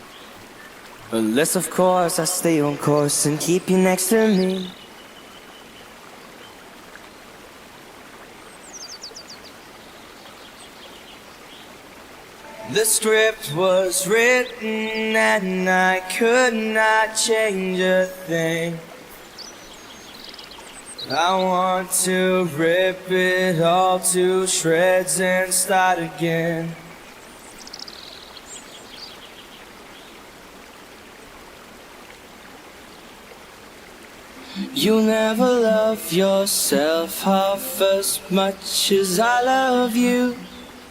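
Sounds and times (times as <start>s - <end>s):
river water running: 0.0s - 40.9s
high chirps: 12.4s - 13.4s.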